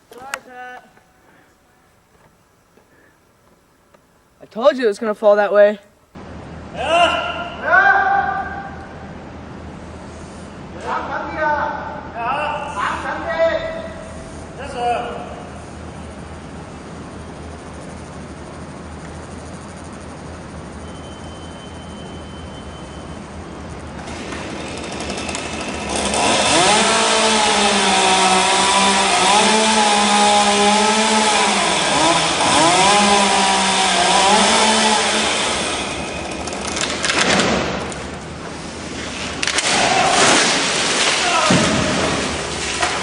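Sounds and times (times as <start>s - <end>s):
chainsaw cutting at high revs: 24.0s - 36.9s.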